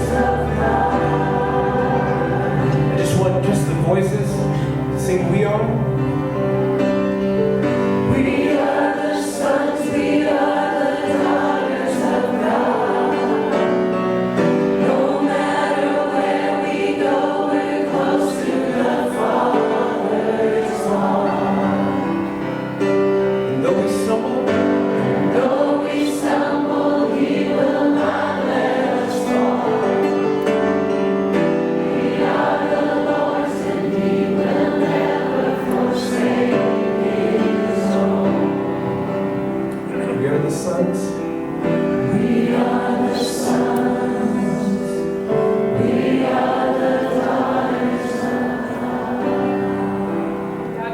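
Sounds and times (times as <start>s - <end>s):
choir singing: 0.0s - 5.4s, 7.6s - 50.9s
sustained instrumental chords: 0.0s - 50.9s.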